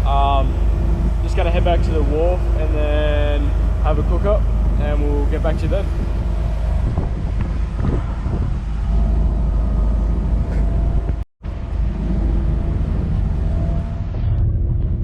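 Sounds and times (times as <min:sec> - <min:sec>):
outboard motor running: 0:00.0 - 0:14.8.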